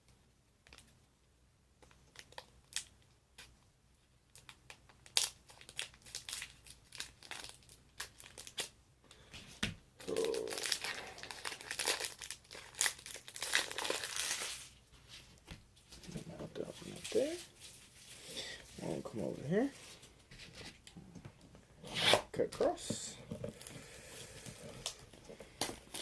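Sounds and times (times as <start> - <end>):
packaging crinkling and tearing: 4.3 - 8.7, 10.0 - 14.9, 24.4 - 26.0.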